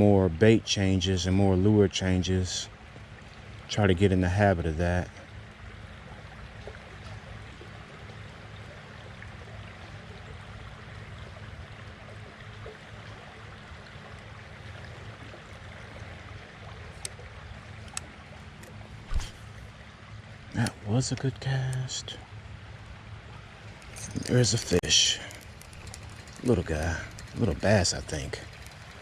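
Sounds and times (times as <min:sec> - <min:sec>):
creek water running: 0:00.0 - 0:29.0
sharp clicks: 0:20.6 - 0:21.9.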